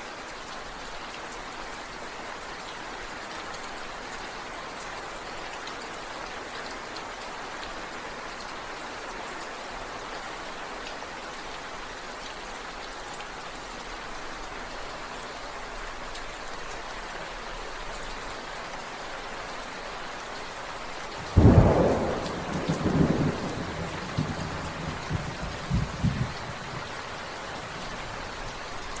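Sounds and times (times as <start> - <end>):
steady rainfall hissing: 0.0 - 29.0
rumbling thunder: 21.2 - 26.9.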